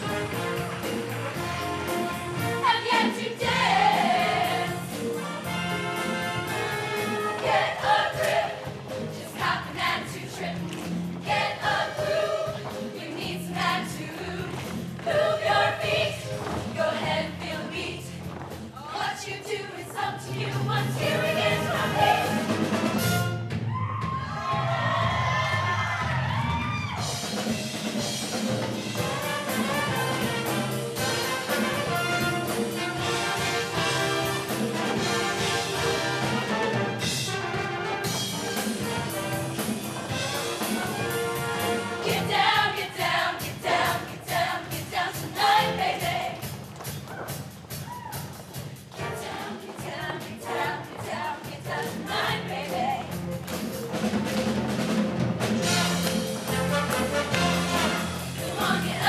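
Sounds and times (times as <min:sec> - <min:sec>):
drums and cymbals: 0:00.0 - 0:59.0
up-tempo brass-led band music: 0:00.0 - 0:59.0
choir singing: 0:02.6 - 0:05.4, 0:06.2 - 0:10.6, 0:11.2 - 0:18.1, 0:18.8 - 0:22.9, 0:40.1 - 0:46.4, 0:49.0 - 0:53.2, 0:55.6 - 0:59.0.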